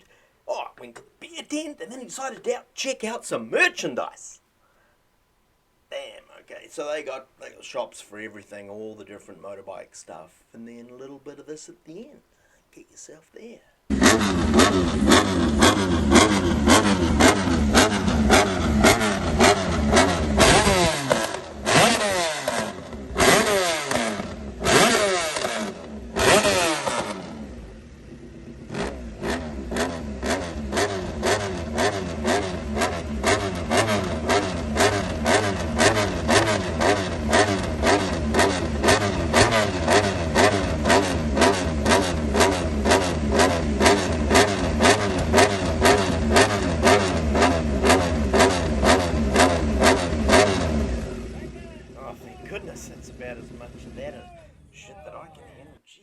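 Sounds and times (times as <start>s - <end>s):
motorcycle engine revving: 13.9s - 55.0s.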